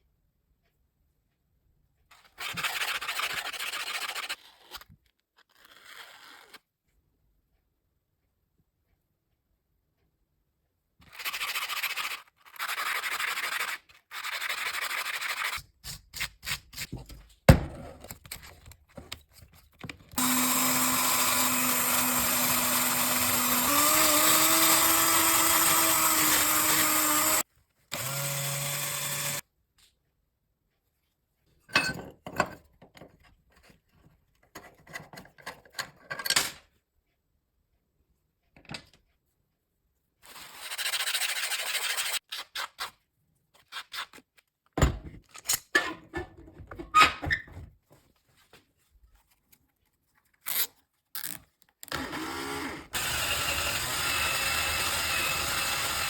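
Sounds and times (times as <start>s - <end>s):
power tool motor running: 20.2s - 29.4s, 51.9s - 56.0s.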